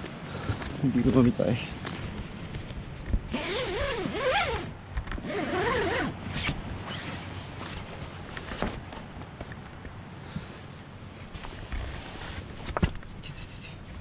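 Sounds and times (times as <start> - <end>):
zipper being pulled: 3.3 - 7.2.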